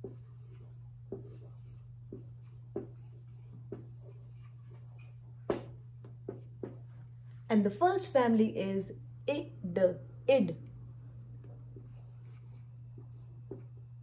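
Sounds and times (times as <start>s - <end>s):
pen scratching on paper: 0.0s - 5.2s, 11.8s - 13.6s
steady low hum: 0.0s - 14.0s.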